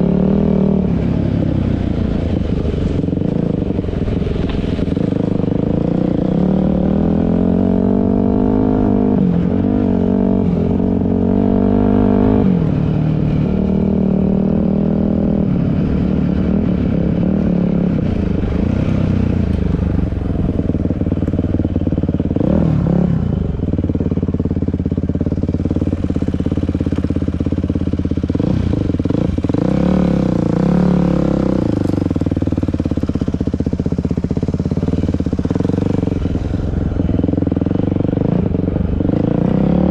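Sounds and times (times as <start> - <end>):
dirt bike engine revving: 34.0 - 39.9.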